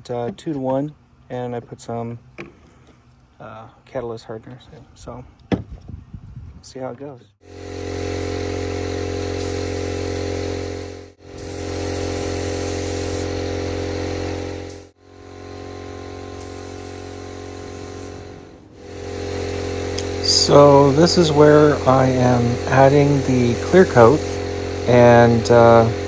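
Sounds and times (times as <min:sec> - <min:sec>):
motor humming: 0:07.5 - 0:26.0
paint spray gun hissing: 0:07.5 - 0:26.0.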